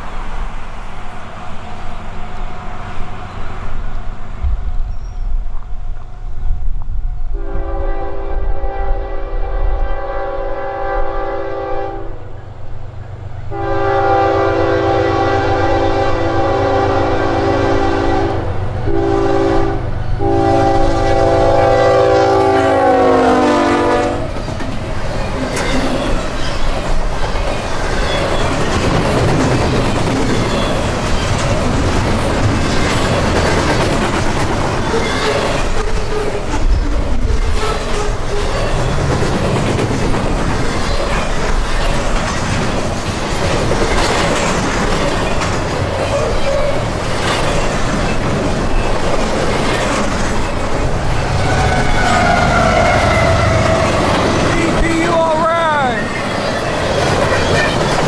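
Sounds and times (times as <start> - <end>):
locomotive air horn: 7.4 - 12.3, 13.5 - 24.4, 51.4 - 54.1
train wheels clattering over rail joints: 24.3 - 54.8, 56.0 - 58.0
locomotive engine rumble: 36.4 - 58.0.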